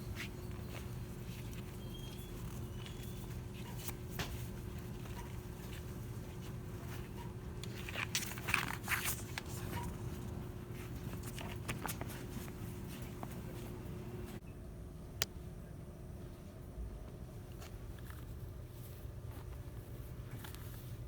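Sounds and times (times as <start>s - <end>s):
constant low hum: 0.0s - 21.0s
crackling rustle: 0.1s - 14.4s.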